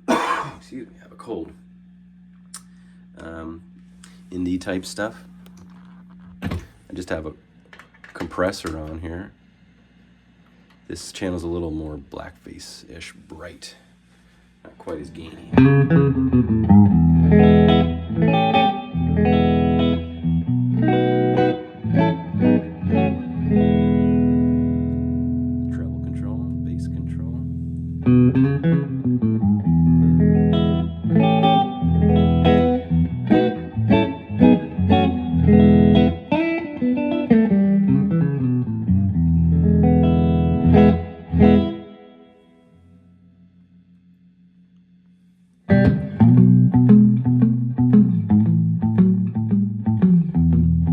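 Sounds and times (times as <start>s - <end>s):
clean electric guitar notes and chords: 14.9s - 43.9s, 45.7s - 50.9s.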